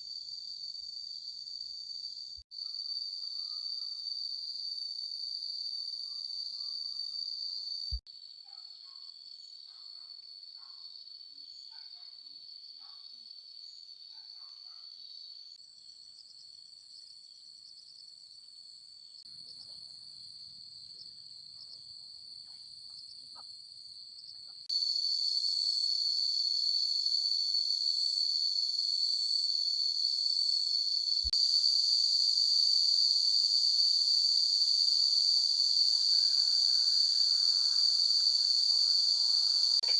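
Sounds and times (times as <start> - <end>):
insects trilling: 24.2 - 39.9.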